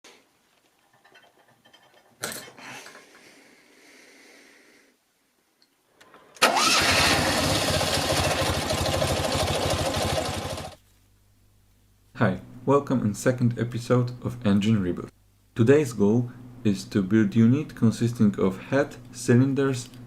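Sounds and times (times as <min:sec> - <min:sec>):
two-cylinder car engine running: 0:06.5 - 0:10.8.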